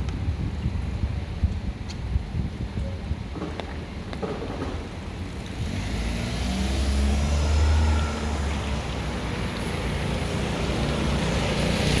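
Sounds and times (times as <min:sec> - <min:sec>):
passing vehicle engine rumble: 0:03.4 - 0:12.0.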